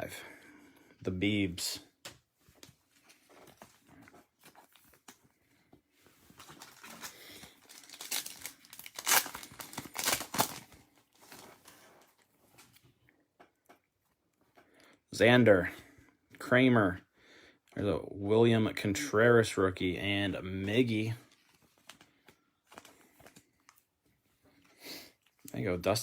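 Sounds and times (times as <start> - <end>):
cards rustling: 2.0 - 5.3, 6.2 - 12.8, 20.7 - 23.9
foil wrapper crinkling: 6.3 - 12.7
wrapper ripping: 6.4 - 11.8.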